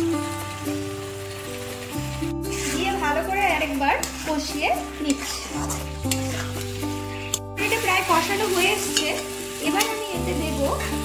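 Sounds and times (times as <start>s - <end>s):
spices sizzling in oil: 0.0s - 11.0s
spatula scraping a pan: 2.4s - 10.1s.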